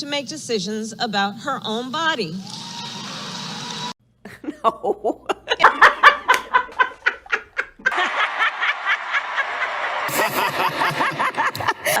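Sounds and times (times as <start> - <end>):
woman laughing: 4.2 - 9.2, 10.1 - 12.0.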